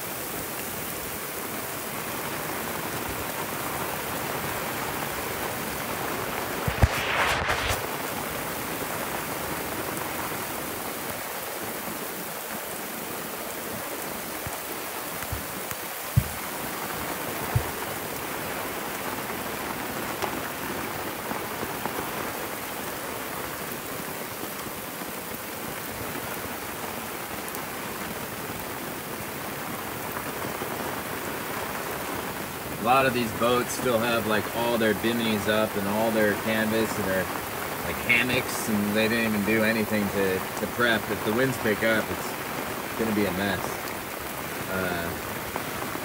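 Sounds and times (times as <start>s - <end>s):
heavy rain on water: 0.0s - 46.0s
short knocks: 16.1s - 16.5s.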